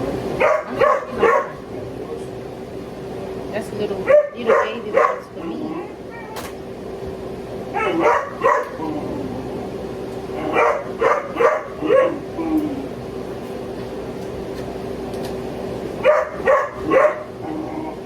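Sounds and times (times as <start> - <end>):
dog barking: 0.4 - 1.7, 4.0 - 5.4, 7.7 - 8.9, 10.4 - 12.2, 16.0 - 17.4.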